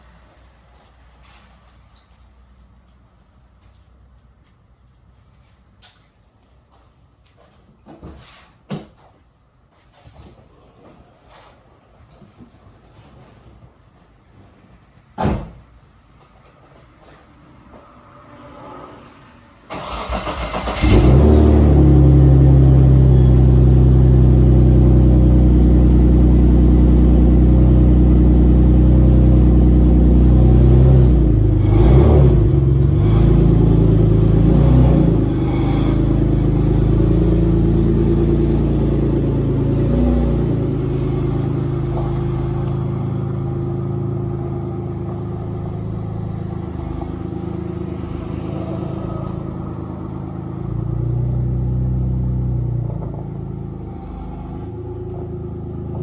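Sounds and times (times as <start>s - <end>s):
car engine revving and idling: 19.8s - 56.0s.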